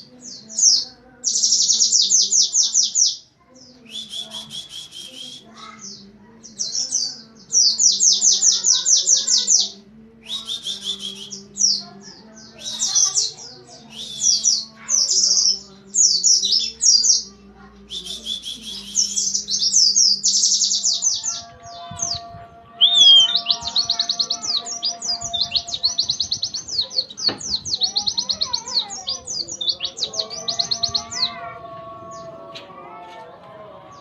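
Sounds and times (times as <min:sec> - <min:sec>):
bird singing fast high trills: 0:22.8 - 0:26.5.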